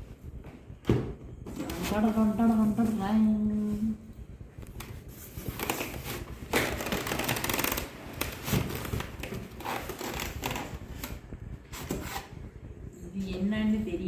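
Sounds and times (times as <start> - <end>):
packaging rustling and crinkling: 4.8 - 11.2.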